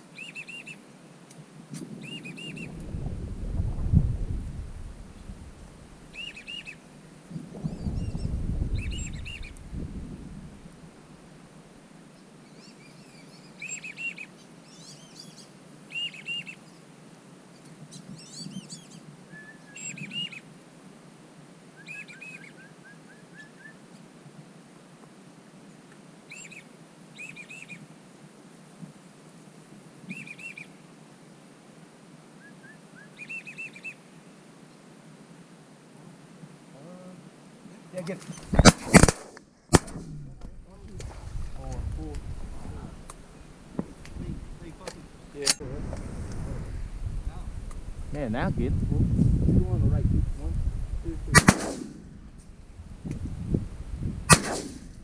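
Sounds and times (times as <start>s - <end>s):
ducks whistling calls: 6.1s - 6.8s.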